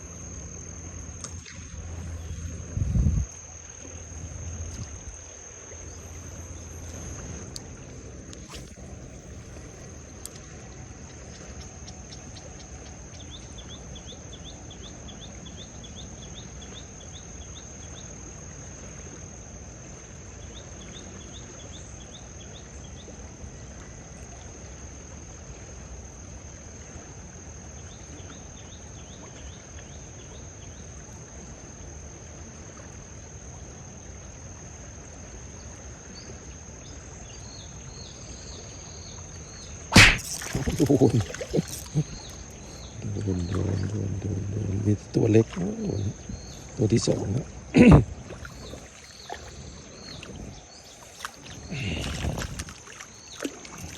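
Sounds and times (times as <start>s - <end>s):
high-pitched insect drone: 0.0s - 21.2s, 36.8s - 53.9s
rapid insect chirps: 0.0s - 23.0s, 23.9s - 53.9s.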